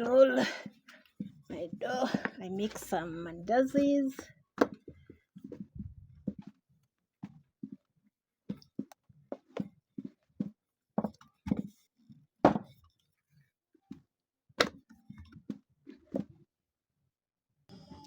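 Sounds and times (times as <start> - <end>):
dough knocking and thumping on board: 4.6 - 6.6, 8.5 - 11.8, 12.4 - 12.8, 14.6 - 16.3.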